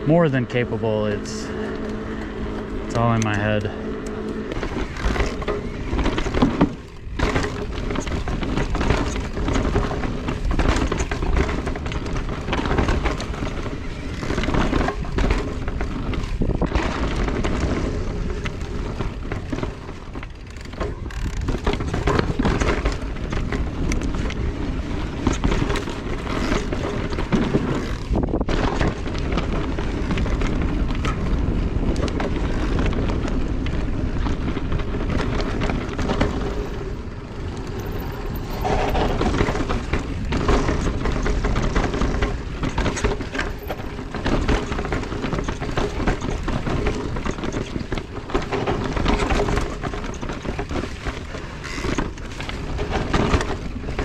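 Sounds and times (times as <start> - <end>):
mountain bike rattling: 0.0 - 54.0
wind on microphone: 20.9 - 44.2.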